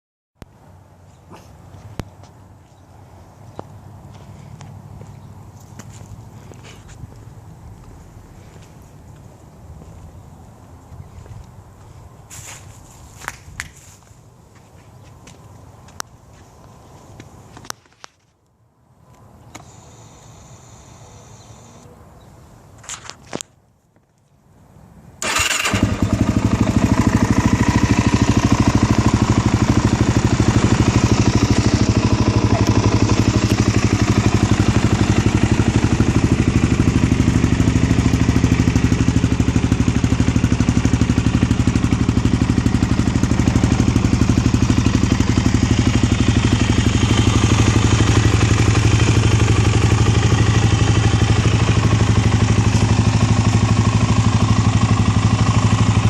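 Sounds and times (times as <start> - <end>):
quad engine cranking: 25.2 - 38.7, 42.8 - 56.0
quad engine idling: 25.2 - 56.0.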